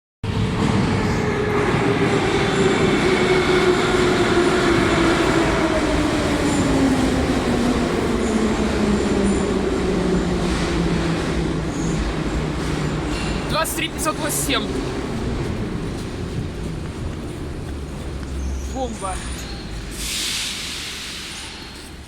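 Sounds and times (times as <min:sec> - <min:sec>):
train wheels rumbling on track: 0:00.2 - 0:22.0.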